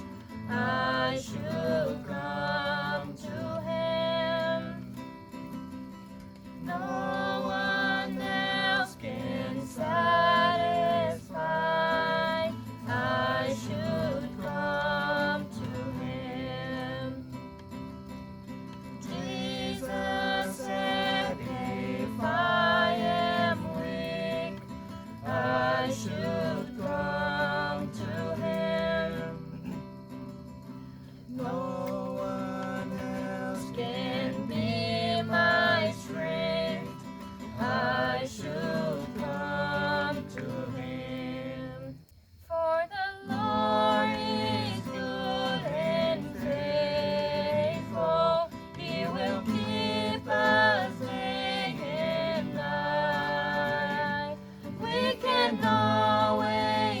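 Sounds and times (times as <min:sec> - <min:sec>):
acoustic guitar: 0:00.0 - 0:57.0
person singing: 0:37.6 - 0:57.0.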